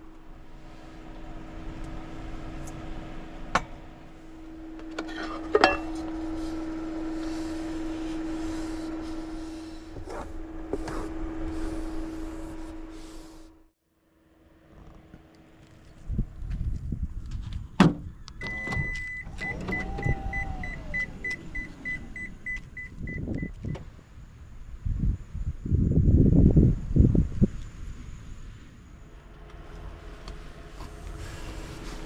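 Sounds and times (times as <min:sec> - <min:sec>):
low hum: 0:00.0 - 0:32.0
tableware clinks: 0:05.1 - 0:05.9.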